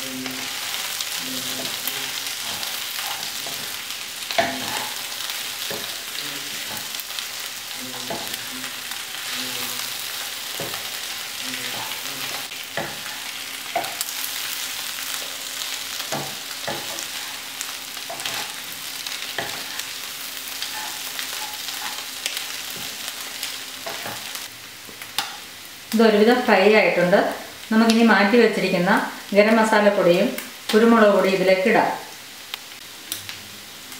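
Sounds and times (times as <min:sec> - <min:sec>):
meat sizzling in oil: 0:00.0 - 0:33.9
spatula scraping and knocking pan: 0:01.4 - 0:07.0, 0:07.9 - 0:08.5, 0:10.3 - 0:14.2, 0:16.0 - 0:24.4.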